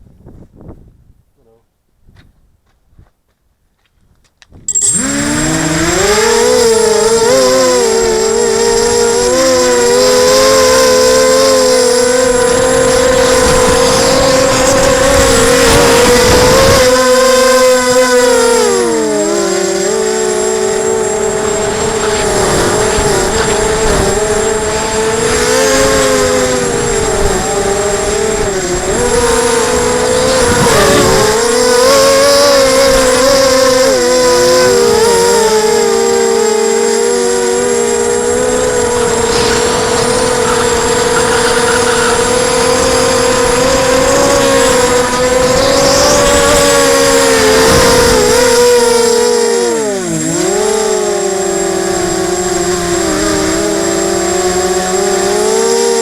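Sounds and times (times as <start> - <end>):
wind rumbling over microphone: 0.0 - 1.3, 10.9 - 17.9, 20.8 - 35.5, 37.7 - 49.3
quadcopter motors whirring: 4.4 - 56.0.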